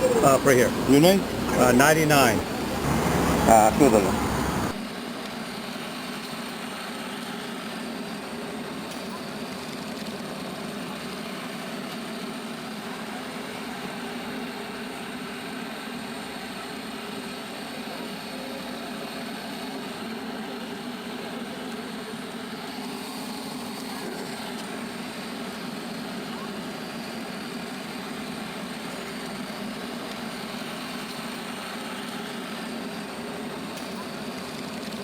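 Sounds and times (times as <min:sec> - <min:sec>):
steady mechanical drone: 0:00.0 - 0:04.8.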